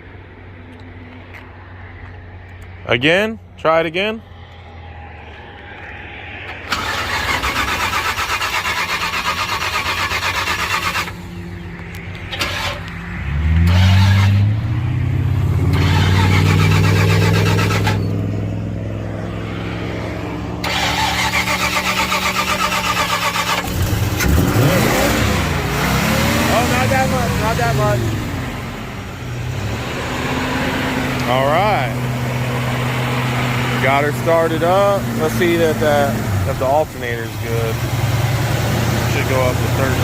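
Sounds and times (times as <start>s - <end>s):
van engine running and revving: 5.3s - 40.0s
starter cranking engine: 6.6s - 11.2s, 15.7s - 18.1s, 20.6s - 24.6s.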